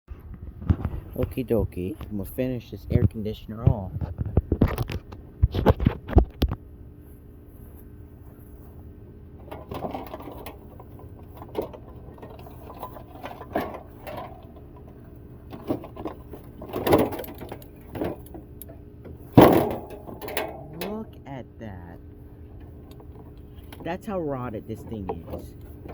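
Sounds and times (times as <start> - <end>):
scraping and clattering: 9.4 - 21.1
metal knocks and clanks: 9.4 - 21.2.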